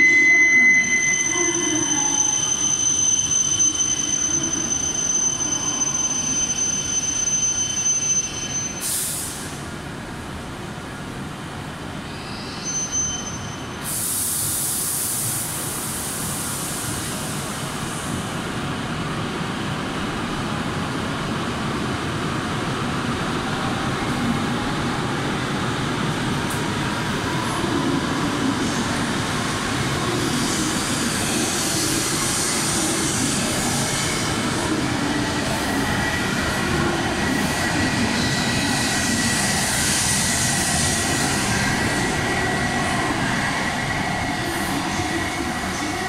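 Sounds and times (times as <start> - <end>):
brief high tone: 0.0 - 2.8
loud hiss: 8.8 - 9.6, 13.8 - 18.2, 28.1 - 35.7
train rolling rumble: 15.0 - 46.0.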